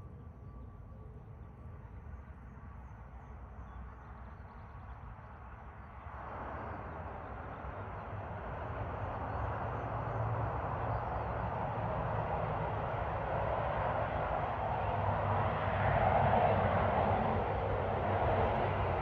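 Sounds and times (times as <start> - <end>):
jet engines roaring: 6.4 - 19.0.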